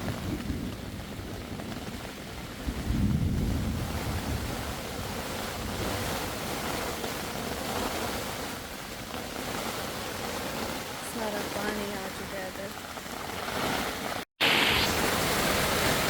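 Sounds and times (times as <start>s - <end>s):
low thunder rumble: 0.0s - 7.7s
heavy rain: 0.0s - 16.0s
wind gusting against microphone: 0.0s - 16.0s.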